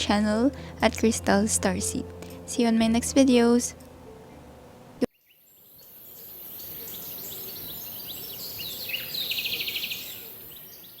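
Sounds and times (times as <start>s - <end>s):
birds chirping: 4.2s - 11.0s
bird trill: 5.1s - 11.0s.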